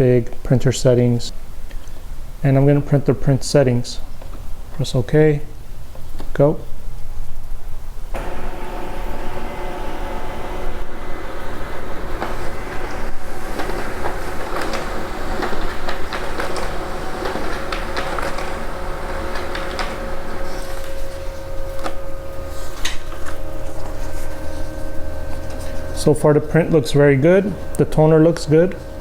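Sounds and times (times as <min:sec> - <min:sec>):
printer motor and fan hum: 0:08.0 - 0:29.0
paper feed clicks and rattles: 0:09.2 - 0:29.0.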